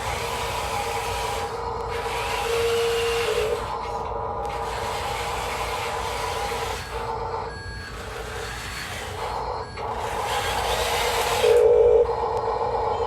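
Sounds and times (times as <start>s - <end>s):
small electric motors whining: 0.0s - 13.0s
pulsing beep tone: 11.4s - 13.0s.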